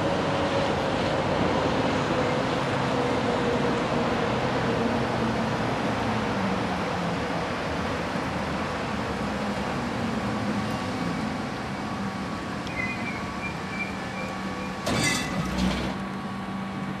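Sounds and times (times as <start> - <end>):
tram rumbling on rails: 0.0 - 17.0
high squeal: 12.7 - 15.5.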